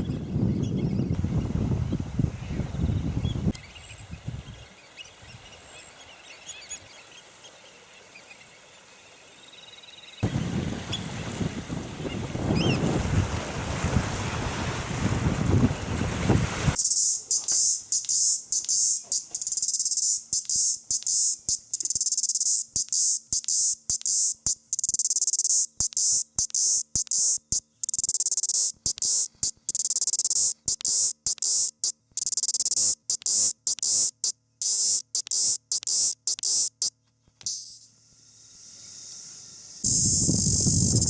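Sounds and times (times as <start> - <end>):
high-pitched insect buzzing: 16.8 - 41.0.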